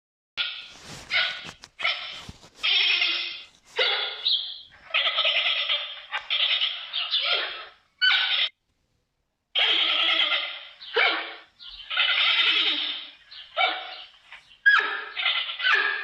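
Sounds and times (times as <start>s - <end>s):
panda bleating: 1.8s - 4.2s, 9.6s - 13.1s.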